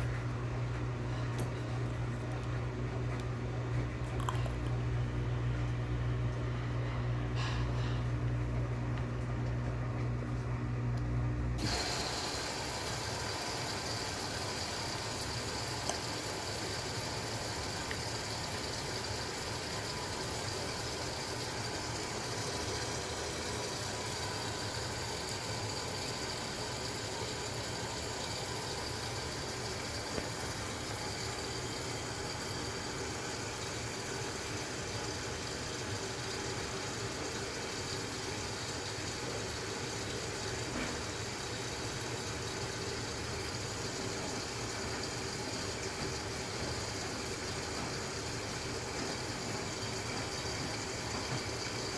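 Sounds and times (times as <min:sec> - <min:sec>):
washing machine running: 0:00.0 - 0:51.9.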